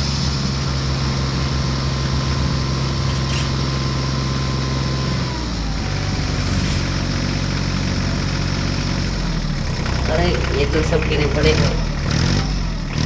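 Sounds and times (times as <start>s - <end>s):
brief hisses: 6.4s - 7.1s.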